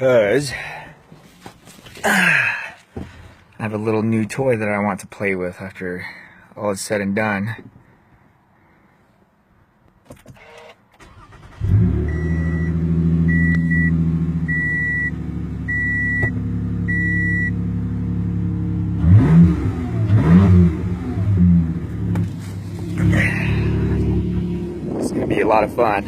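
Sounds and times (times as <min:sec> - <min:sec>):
car engine starting and idling: 0:10.2 - 0:26.0
car engine revving: 0:11.1 - 0:26.0.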